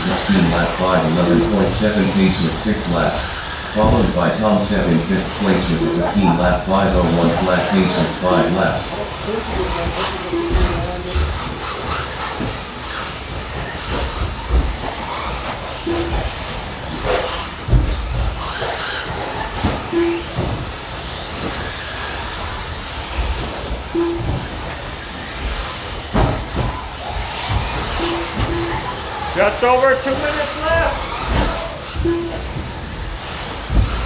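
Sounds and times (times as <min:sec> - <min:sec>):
rc car motor whine: 0:08.9 - 0:34.0
short beeps: 0:10.3 - 0:10.9, 0:20.0 - 0:20.3, 0:24.0 - 0:24.4, 0:28.0 - 0:28.9, 0:31.4 - 0:32.5.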